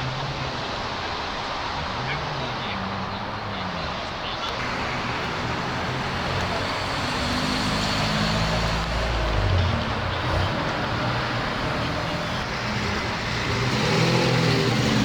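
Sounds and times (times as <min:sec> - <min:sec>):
car engines running: 0:00.0 - 0:15.0
deep exhaust rumble: 0:04.6 - 0:15.0.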